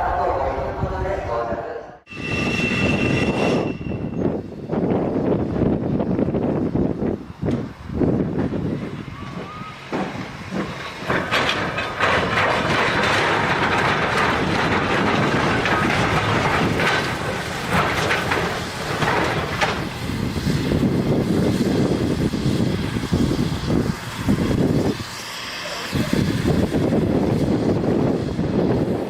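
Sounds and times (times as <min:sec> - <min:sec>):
train rushing on rails: 0:00.0 - 0:29.0
train wheels clacking: 0:09.2 - 0:20.8.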